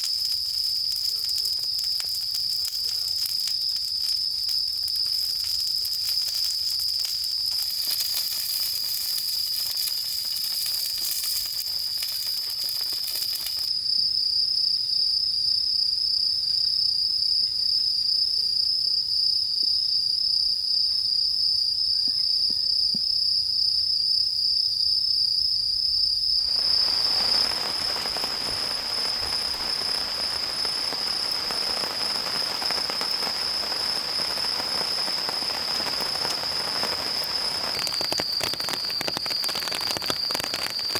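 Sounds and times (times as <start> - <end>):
rain patter: 0.0 - 13.7, 26.4 - 40.9
crickets trilling: 0.0 - 40.9.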